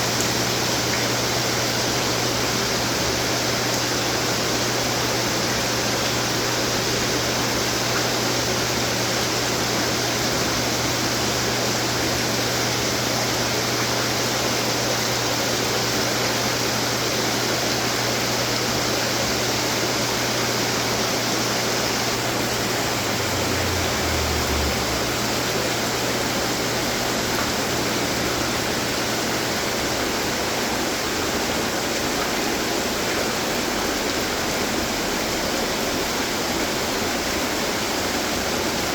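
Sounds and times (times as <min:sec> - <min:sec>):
water fountains splashing: 0:00.0 - 0:38.9.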